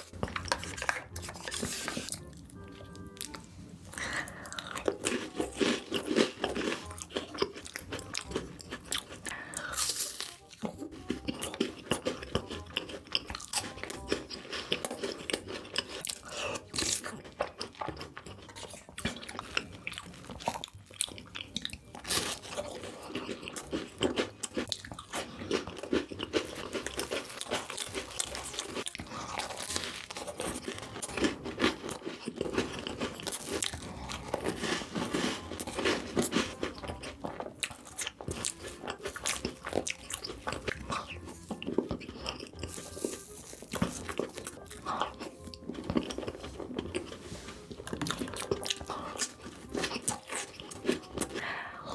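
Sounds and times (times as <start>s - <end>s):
chewing crunchy chocolate: 0.0s - 51.9s.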